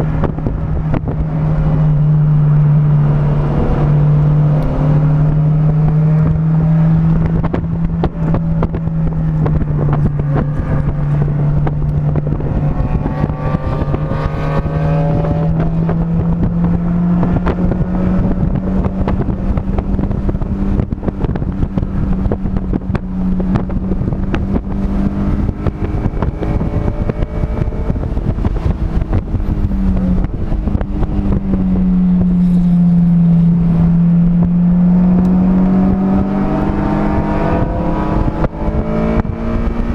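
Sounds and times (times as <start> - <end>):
heavy wind noise: 0.0 - 39.9
vehicle engine running hard: 0.0 - 39.9.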